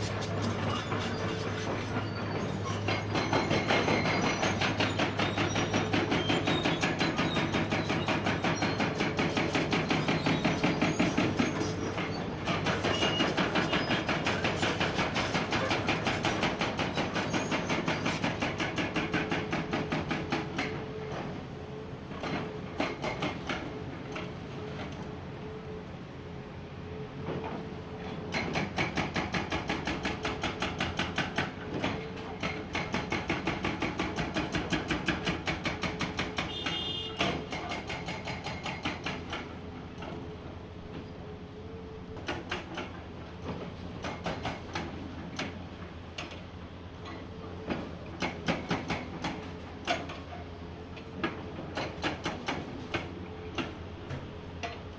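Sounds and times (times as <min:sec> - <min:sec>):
hydraulic breaker pounding rock: 0:00.0 - 0:20.8, 0:28.3 - 0:40.2, 0:47.0 - 0:50.3.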